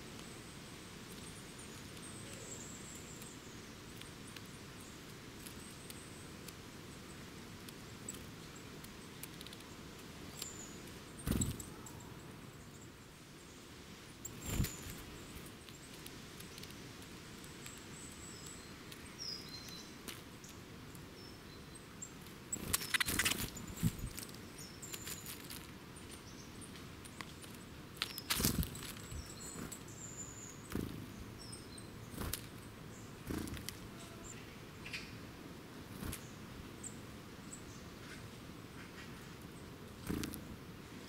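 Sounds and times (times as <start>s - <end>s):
birds chirping: 0.0s - 41.0s
wing flutters: 11.2s - 11.9s, 14.2s - 16.8s, 22.5s - 25.7s, 27.2s - 29.8s, 33.2s - 33.9s, 40.0s - 40.5s.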